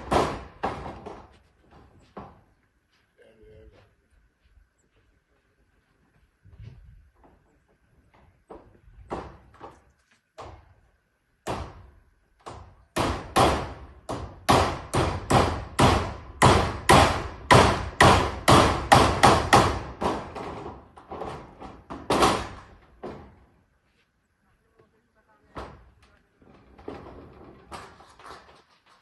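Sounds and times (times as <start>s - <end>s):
hammer on metal roofing sheets: 0.0s - 1.3s, 11.4s - 23.4s.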